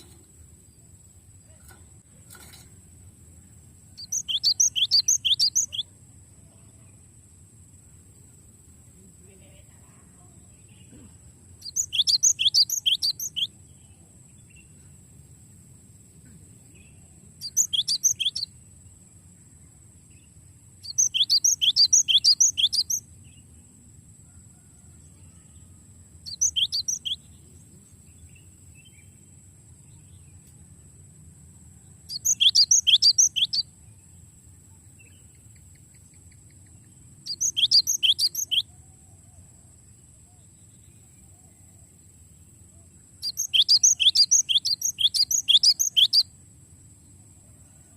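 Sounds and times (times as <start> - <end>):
bird singing trills: 3.9 - 6.0, 10.4 - 15.0, 16.6 - 18.9, 19.5 - 23.6, 24.8 - 30.4, 31.7 - 39.5, 40.3 - 46.4.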